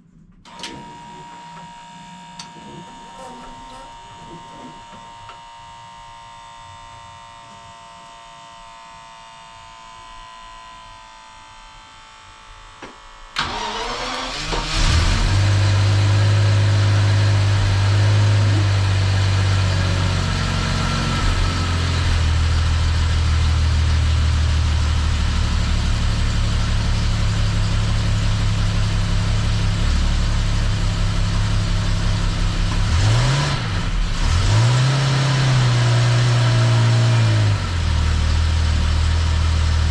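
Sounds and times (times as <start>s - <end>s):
car engine cranking and idling: 13.4s - 39.9s.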